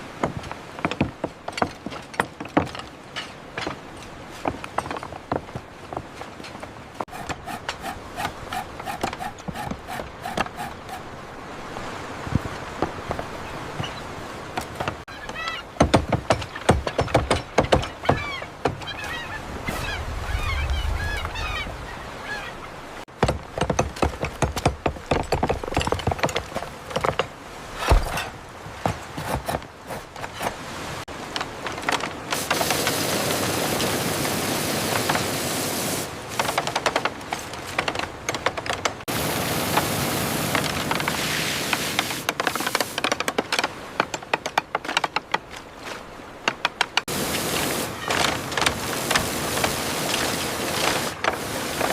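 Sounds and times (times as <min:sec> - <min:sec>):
sharp knocks and clatter: 0:00.2 - 0:10.7, 0:15.8 - 0:18.9, 0:23.1 - 0:30.5, 0:36.3 - 0:39.1, 0:42.2 - 0:45.6
bird calls: 0:13.3 - 0:14.2, 0:15.0 - 0:15.8, 0:16.4 - 0:22.8.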